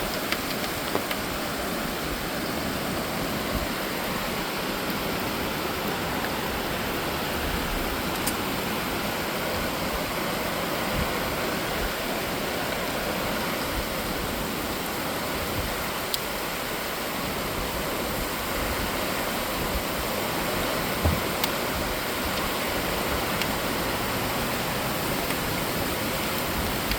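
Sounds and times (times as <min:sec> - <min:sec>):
steady rain hiss: 0:00.0 - 0:26.9
small thump: 0:21.0 - 0:21.2.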